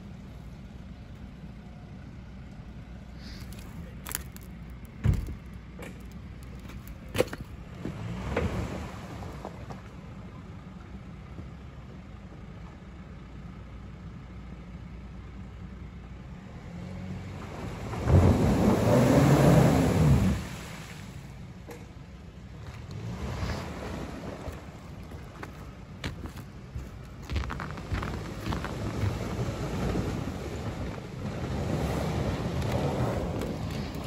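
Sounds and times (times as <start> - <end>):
car engine running low: 0.0 - 34.0
ice breaking and water: 3.4 - 5.5, 22.8 - 34.0
engine revving: 22.8 - 24.8.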